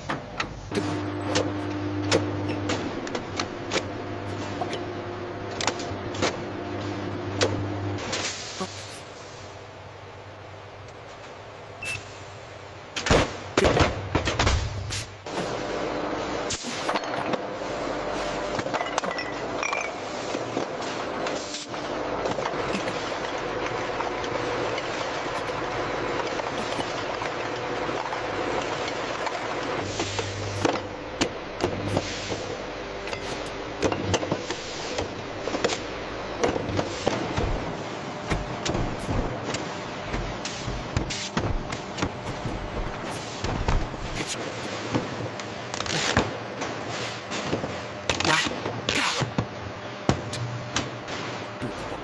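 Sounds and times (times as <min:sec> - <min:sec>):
production-line machinery running: 0:00.0 - 0:11.8, 0:12.4 - 0:52.0
mechanical clattering: 0:22.1 - 0:44.4.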